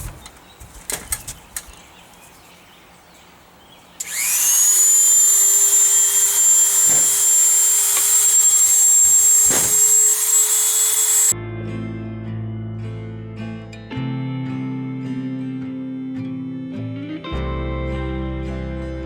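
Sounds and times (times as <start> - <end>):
rotary tool whining: 4.0 - 11.4.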